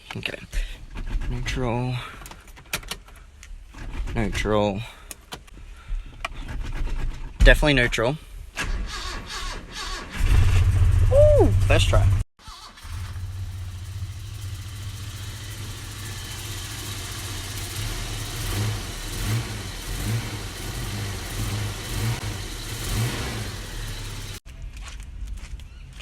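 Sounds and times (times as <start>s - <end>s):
petrol engine idling: 12.0s - 19.1s.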